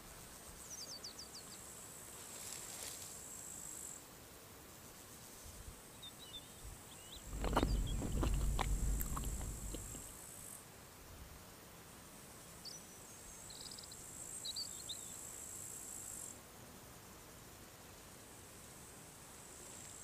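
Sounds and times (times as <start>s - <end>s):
bird chirps: 6.3s - 10.0s
crickets chirring: 7.0s - 10.6s
low rumble: 7.2s - 10.1s
sharp knocks: 7.3s - 10.1s.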